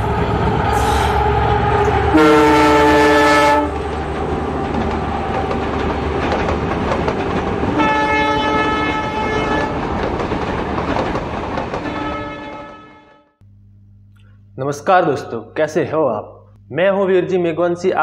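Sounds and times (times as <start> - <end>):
train horn blasts: 0.0 - 4.6, 7.7 - 9.8, 11.8 - 13.3
train rumbling past: 0.0 - 13.2.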